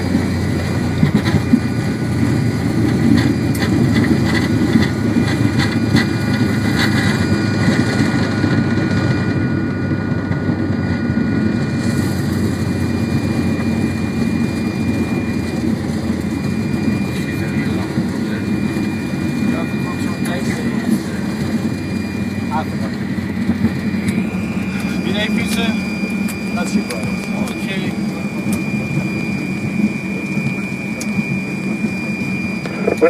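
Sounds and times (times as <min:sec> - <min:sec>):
jet engines rumbling: 0:00.0 - 0:33.0
thin high whine: 0:10.8 - 0:33.0.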